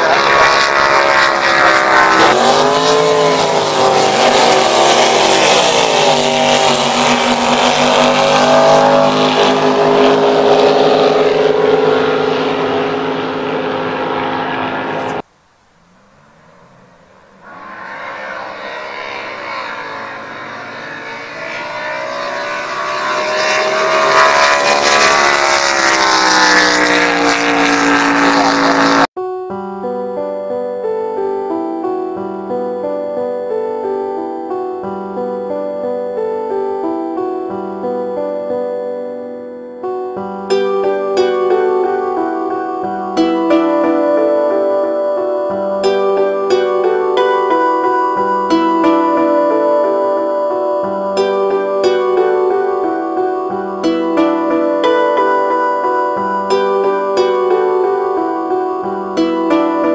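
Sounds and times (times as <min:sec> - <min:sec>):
drag boat engine roaring past: 0:00.0 - 0:15.2, 0:15.9 - 0:29.2.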